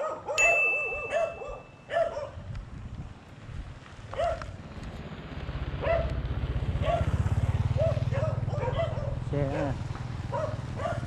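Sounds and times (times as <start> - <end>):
dog barking: 0.0 - 2.4, 4.1 - 4.5, 5.8 - 6.2, 6.8 - 7.2, 7.8 - 9.6, 10.3 - 11.0
steady high tone: 0.4 - 1.9.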